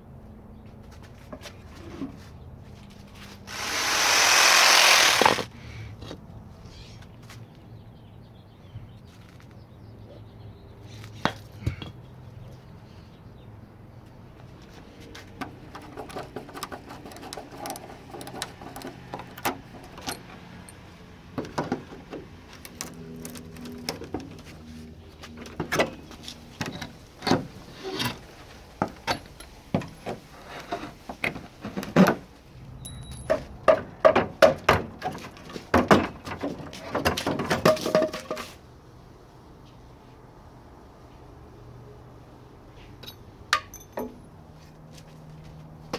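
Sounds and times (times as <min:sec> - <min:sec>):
rapid scraping rattling: 0:03.4 - 0:05.5, 0:15.6 - 0:20.3
metallic clinks of tools: 0:32.8 - 0:33.5, 0:43.0 - 0:44.3.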